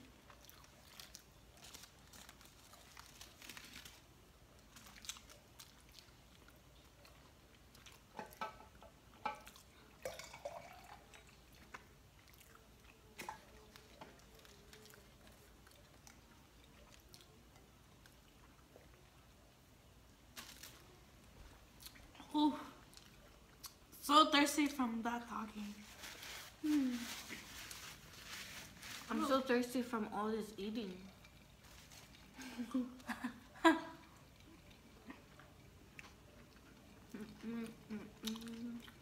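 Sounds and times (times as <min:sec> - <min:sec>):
chewing and biting food: 0:11.1 - 0:19.2.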